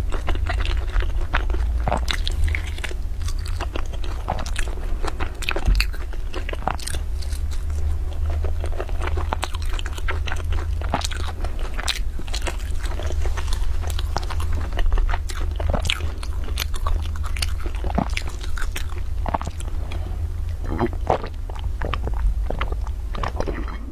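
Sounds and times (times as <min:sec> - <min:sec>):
crunchy food chewing: 0:00.0 - 0:23.9
steady low hum: 0:00.0 - 0:23.9.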